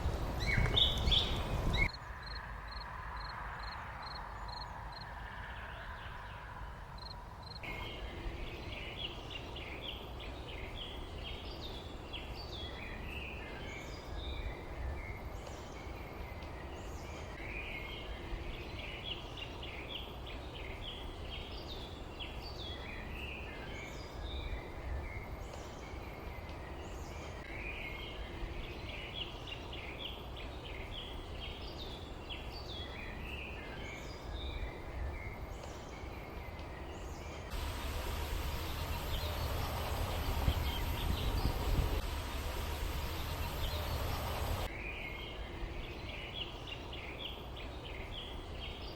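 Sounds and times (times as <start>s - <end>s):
small birds chirping: 0.0s - 5.0s, 7.0s - 48.9s
low steady rumble: 37.5s - 44.7s.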